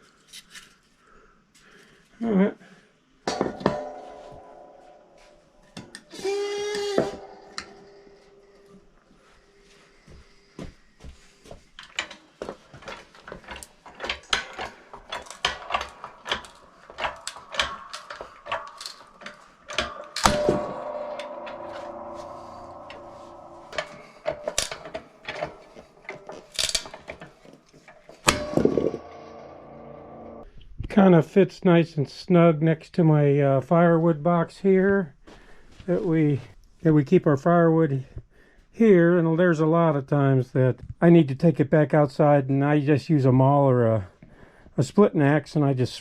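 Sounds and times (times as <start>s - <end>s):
wood and metal clattering: 3.3s - 8.8s, 10.6s - 30.4s
loud bang with ringing: 3.3s - 9.6s, 17.8s - 30.4s.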